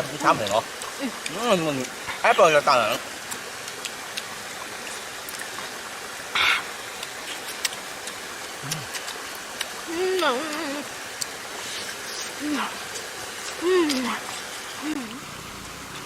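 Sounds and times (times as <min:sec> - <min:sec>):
stream water flowing: 0:00.0 - 0:16.0.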